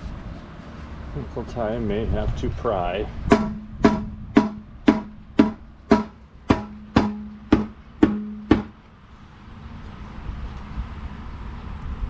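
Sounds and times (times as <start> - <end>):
hammer blows on metal ringing: 3.3 - 8.8.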